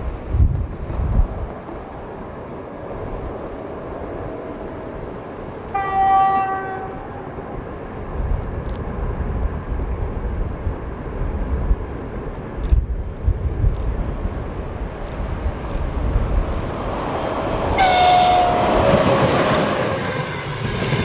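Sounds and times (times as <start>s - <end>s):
train rumble: 0.0s - 21.0s
wind noise: 0.0s - 21.0s
train horn: 5.7s - 7.4s, 17.8s - 20.0s.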